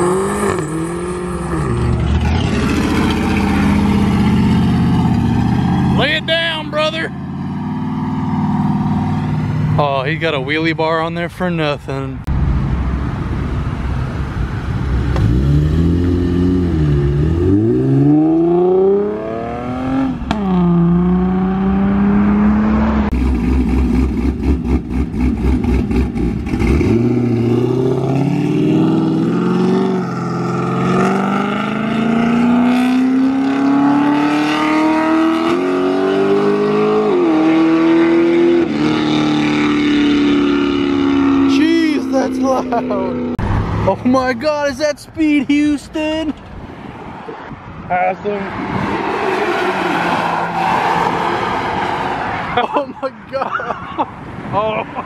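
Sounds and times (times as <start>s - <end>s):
car engine revving and accelerating: 0.0s - 9.8s, 15.0s - 44.0s.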